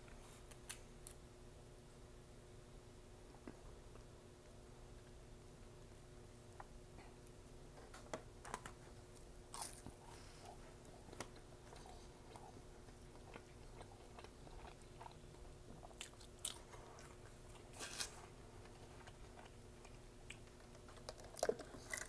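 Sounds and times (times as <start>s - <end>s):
chewing with crunches: 8.5s - 22.0s.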